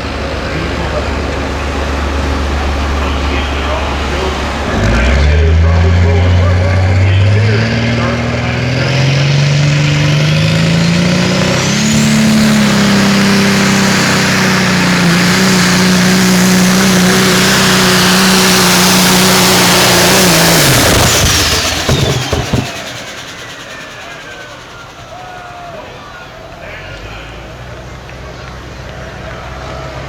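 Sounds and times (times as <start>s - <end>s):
diesel engine revving: 0.0s - 30.0s
engine crackling: 0.0s - 30.0s
turbo whistle: 17.0s - 26.4s.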